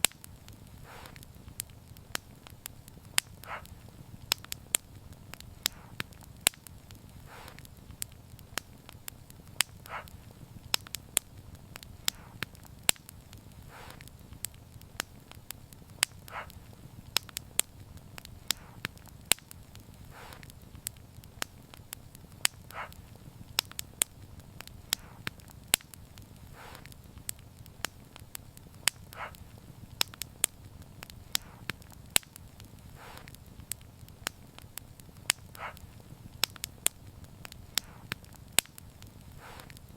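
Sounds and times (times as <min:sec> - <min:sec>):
fire hissing: 0:00.0 - 0:39.9
low rumble of burning: 0:00.0 - 0:39.9
wood fire crackling: 0:00.0 - 0:39.9.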